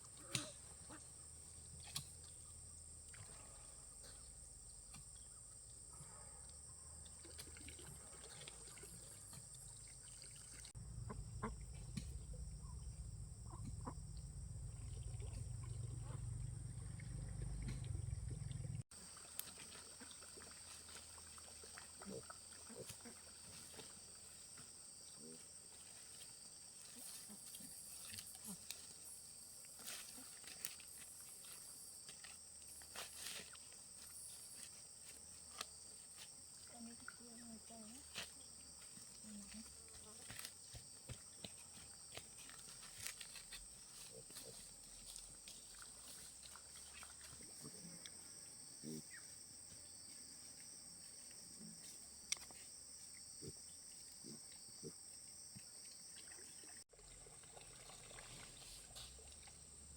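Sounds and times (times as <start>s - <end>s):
insects chirring: 0.0s - 56.9s
low rumble: 10.8s - 18.8s
faint low grunt-like calls: 10.9s - 18.8s, 21.8s - 23.6s, 47.4s - 49.4s.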